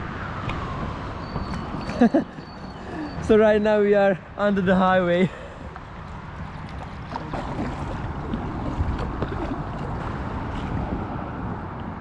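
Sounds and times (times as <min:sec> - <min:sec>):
water splashing around boat: 0:00.6 - 0:03.3, 0:05.1 - 0:11.7.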